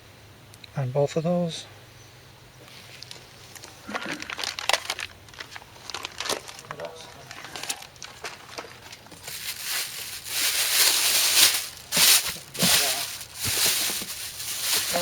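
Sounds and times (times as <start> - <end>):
plastic packaging crinkling: 4.0 - 15.0.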